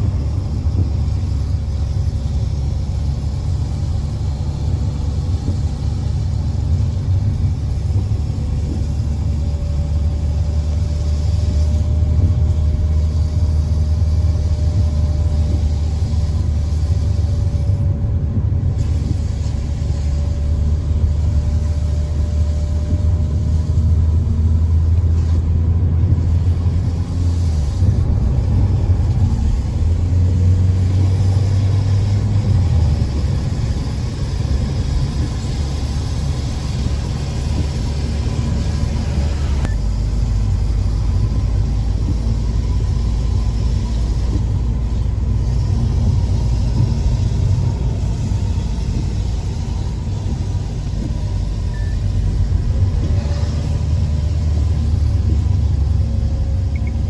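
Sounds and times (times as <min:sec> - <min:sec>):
car driving on road: 0:00.0 - 0:57.0.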